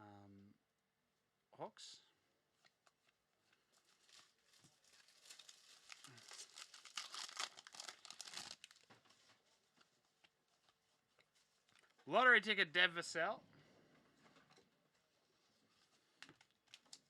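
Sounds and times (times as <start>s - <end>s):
foil wrapper crinkling and tearing: 3.8s - 9.2s, 16.2s - 17.0s.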